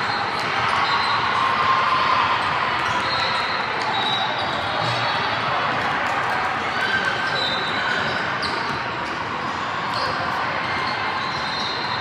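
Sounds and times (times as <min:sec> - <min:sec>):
din of players and spectators: 0:00.0 - 0:12.0
sneakers squeaking: 0:02.4 - 0:05.3, 0:06.9 - 0:09.2, 0:09.9 - 0:12.0.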